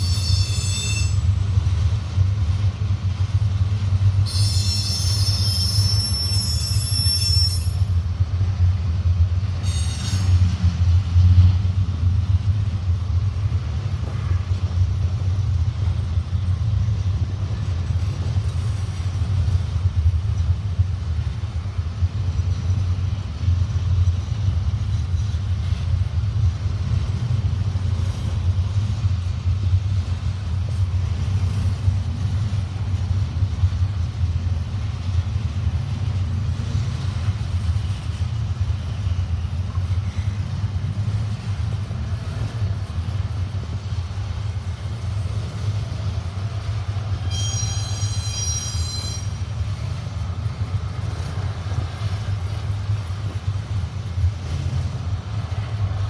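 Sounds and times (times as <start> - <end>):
high-pitched wheel squeal: 0.0 - 1.3, 4.3 - 7.9, 9.6 - 10.3, 47.2 - 49.5
freight wheels rumbling on rails: 0.0 - 56.0.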